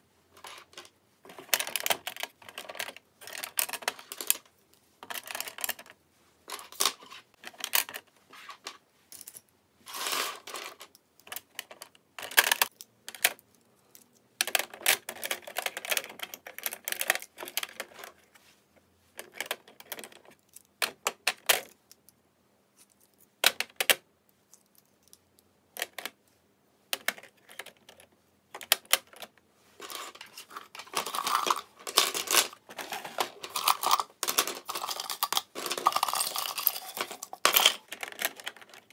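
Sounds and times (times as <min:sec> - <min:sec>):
small hard objects clattering: 0:29.8 - 0:38.9.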